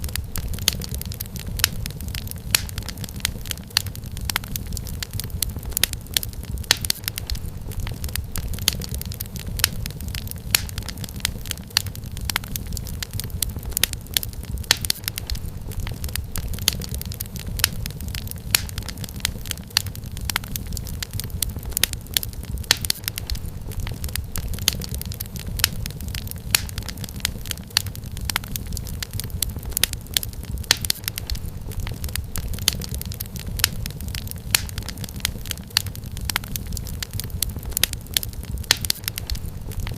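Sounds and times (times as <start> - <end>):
firewood popping and snapping: 0.0 - 39.9
flames rumbling: 0.0 - 39.9.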